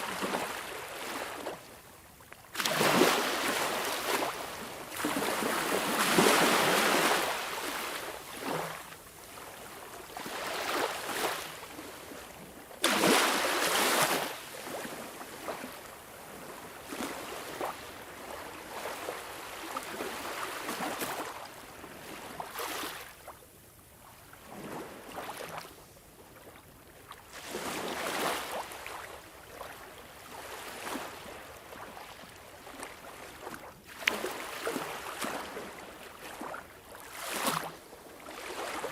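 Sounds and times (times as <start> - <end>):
ocean waves breaking: 2.6 - 8.9, 12.8 - 15.8.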